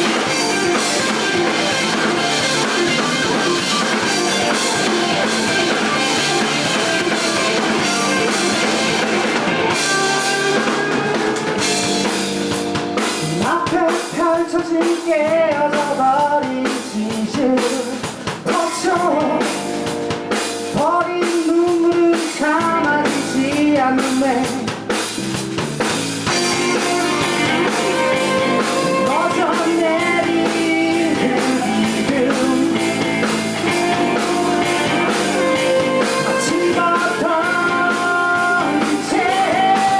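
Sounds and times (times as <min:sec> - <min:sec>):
live rock band playing: 0:00.0 - 0:39.9
person singing: 0:13.2 - 0:19.9, 0:20.7 - 0:24.8, 0:26.4 - 0:39.9.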